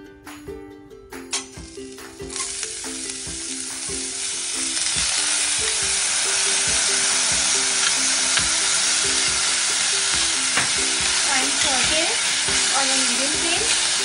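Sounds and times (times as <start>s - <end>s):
soft background music: 0.0s - 14.0s
onions sizzling in hot oil: 1.4s - 14.0s
spatula stirring in pan: 4.8s - 14.0s.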